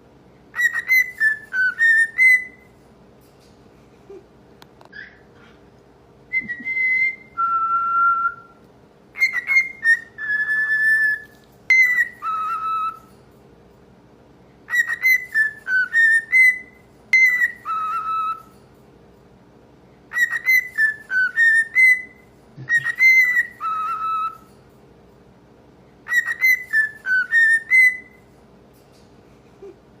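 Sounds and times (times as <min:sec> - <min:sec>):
cockatiel whistling song: 0:00.5 - 0:02.7, 0:06.3 - 0:13.1, 0:14.7 - 0:18.5, 0:20.1 - 0:24.5, 0:26.0 - 0:28.2.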